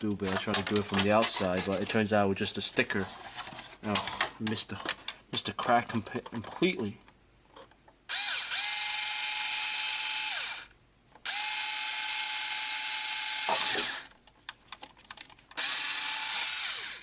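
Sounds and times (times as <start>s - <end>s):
electric screwdriver drilling whine: 8.1s - 14.1s, 15.6s - 17.0s.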